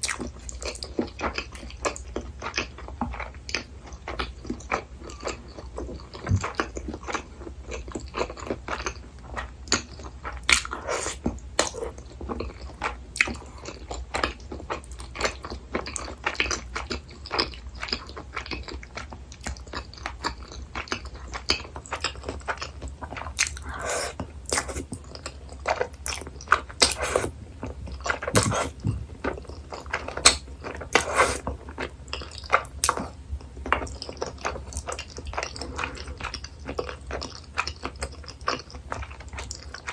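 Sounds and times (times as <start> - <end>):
person chewing food: 0.0 - 39.9
wet mouth smacks: 28.3 - 28.9.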